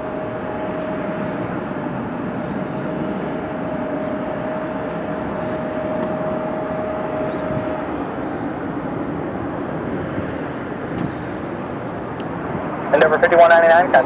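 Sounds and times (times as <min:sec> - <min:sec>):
jet engines roaring: 0:00.0 - 0:14.0
thin engine whine: 0:00.0 - 0:14.0.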